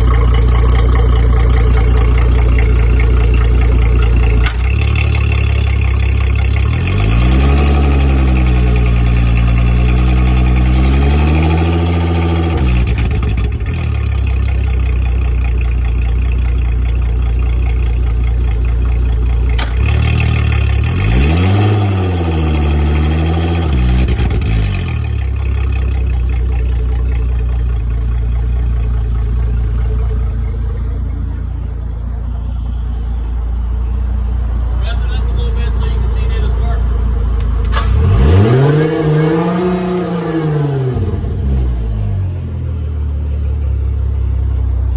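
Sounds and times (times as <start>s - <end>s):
outboard boat engine revving: 0.0s - 30.9s, 37.6s - 42.3s.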